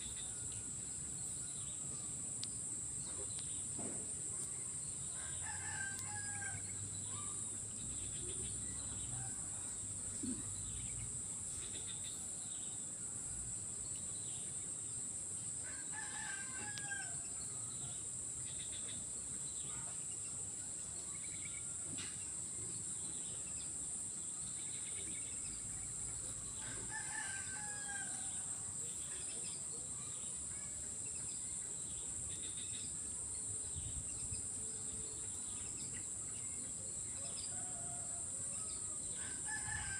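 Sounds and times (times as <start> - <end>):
rooster crowing: 5.2 - 6.6, 15.7 - 17.2, 26.8 - 28.3, 39.2 - 39.9
high insect drone: 22.4 - 39.9.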